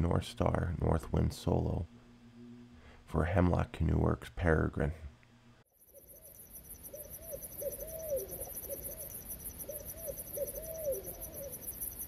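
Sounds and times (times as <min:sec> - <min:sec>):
owl hooting: 0:05.8 - 0:12.0
pulsing high-pitched hiss: 0:05.9 - 0:12.0.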